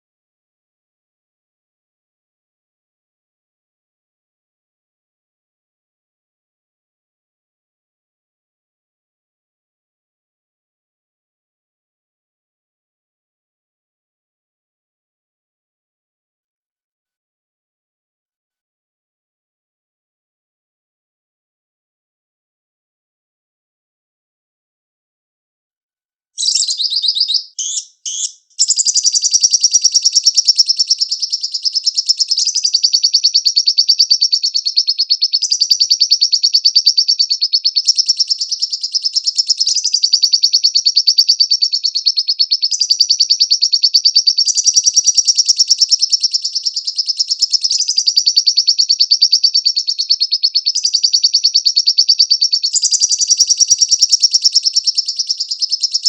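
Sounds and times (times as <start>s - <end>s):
lovebird chattering trills: 26.4s - 56.0s.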